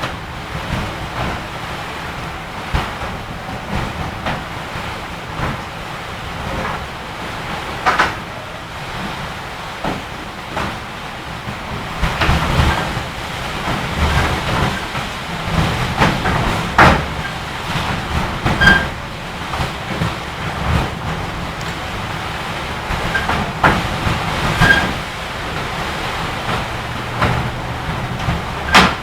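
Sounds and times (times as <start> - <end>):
wind buffeting microphone: 0.0 - 29.0
sharp knocks and rattles: 6.4 - 9.1, 11.5 - 29.0.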